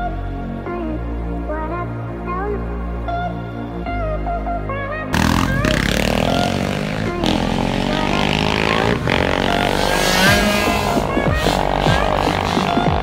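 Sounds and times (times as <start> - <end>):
background music: 0.0 - 13.0
motorbike engine revving: 5.1 - 13.0.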